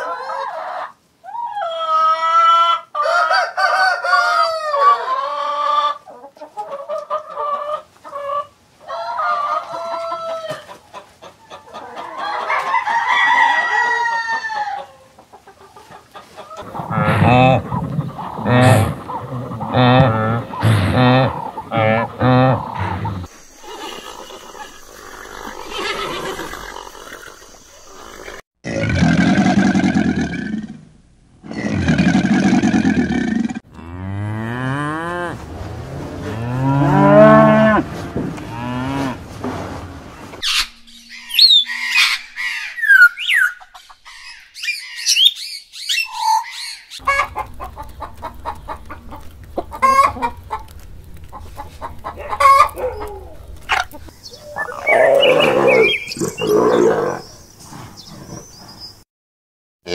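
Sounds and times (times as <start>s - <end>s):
low animal calls: 16.6s - 30.6s, 51.4s - 58.6s
high chirping: 40.4s - 47.0s, 53.7s - 58.6s.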